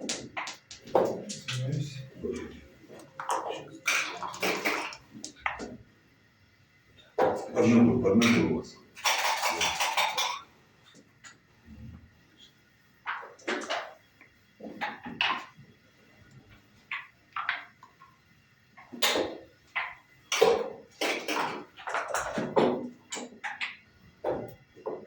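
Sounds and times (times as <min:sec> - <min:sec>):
dice and game pieces clacking: 0:00.0 - 0:01.8, 0:03.2 - 0:05.7, 0:09.0 - 0:10.4, 0:19.0 - 0:23.8.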